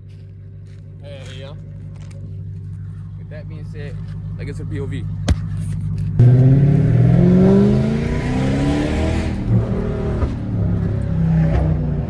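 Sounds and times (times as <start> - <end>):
car engine accelerating hard: 4.0 - 12.0.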